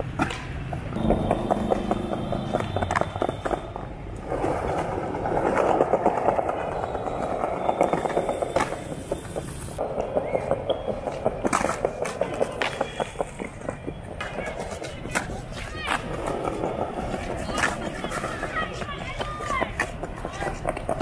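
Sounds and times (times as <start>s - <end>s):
skateboard clacking on ground: 0.0s - 21.0s
skateboard wheels rolling on pavement: 0.0s - 21.0s.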